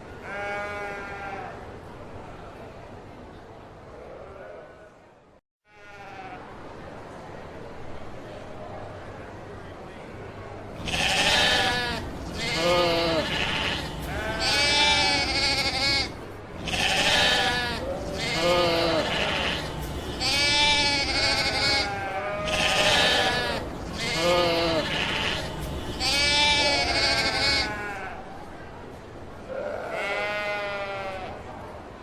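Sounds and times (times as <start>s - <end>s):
sheep bleating: 0.2s - 1.5s, 5.7s - 6.4s, 10.8s - 28.2s, 29.5s - 31.3s.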